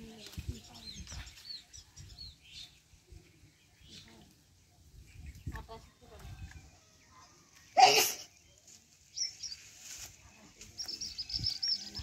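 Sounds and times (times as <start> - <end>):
small bird chirping: 0.1 - 9.9, 10.6 - 12.0.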